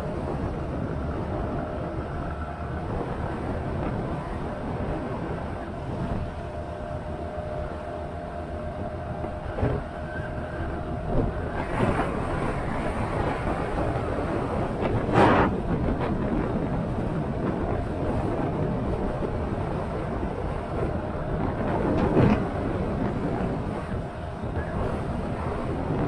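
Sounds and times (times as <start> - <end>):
motorcycle engine and road rumble: 0.0 - 26.0
wind on microphone: 0.0 - 26.0.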